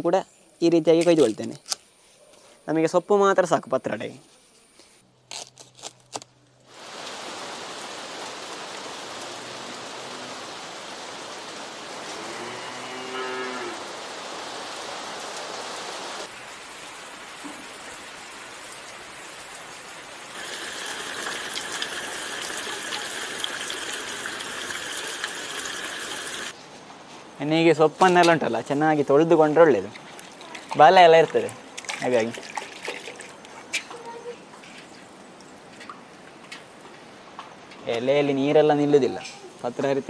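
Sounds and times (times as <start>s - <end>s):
heavy rain falling: 6.7s - 26.5s
cow mooing: 12.1s - 13.8s.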